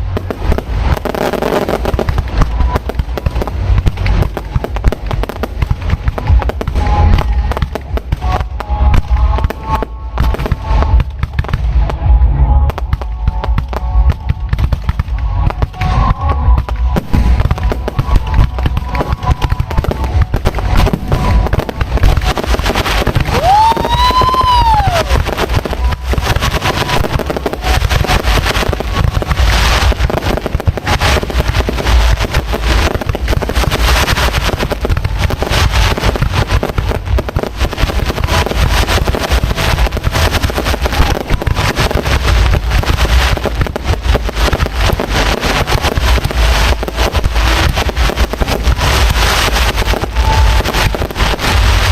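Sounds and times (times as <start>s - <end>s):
fireworks bangs and crackles: 0.0s - 51.9s
firework whistle rising: 15.4s - 37.0s.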